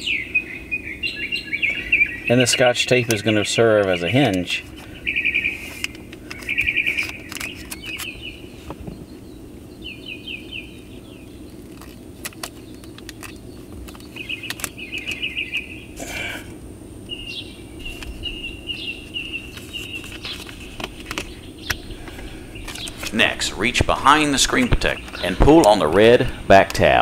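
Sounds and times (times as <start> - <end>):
songbird singing: 0.0 - 27.0
steady low hum: 0.0 - 27.0
handling clicks and rustles: 2.6 - 9.1, 11.5 - 15.7, 17.8 - 27.0.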